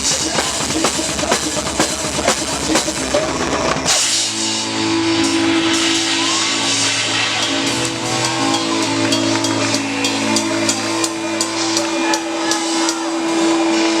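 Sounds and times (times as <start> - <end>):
heavy metal band playing: 0.0 - 14.0
sharp cymbal hits: 3.9 - 13.1.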